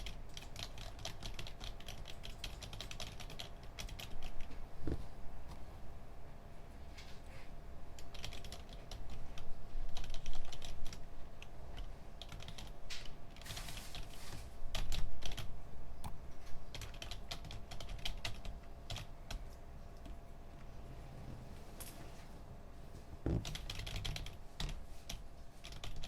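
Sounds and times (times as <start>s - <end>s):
keyboard typing: 0.0s - 5.6s, 8.0s - 14.1s, 14.7s - 20.7s, 23.3s - 26.0s
steady low hum: 0.0s - 26.0s.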